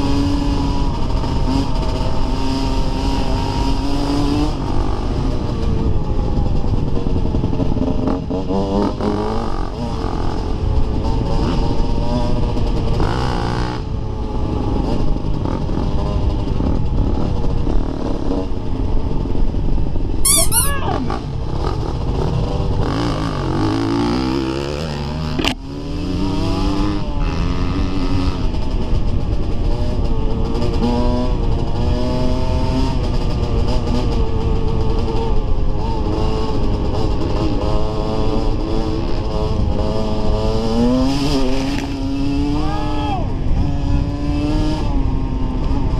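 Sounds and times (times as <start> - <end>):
high warbling squeal: 20.3 - 21.1.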